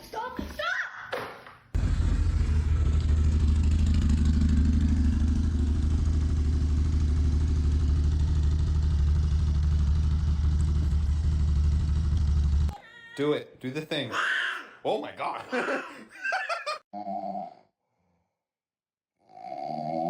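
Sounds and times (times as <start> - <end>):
low rumbling drone: 1.8 - 12.7.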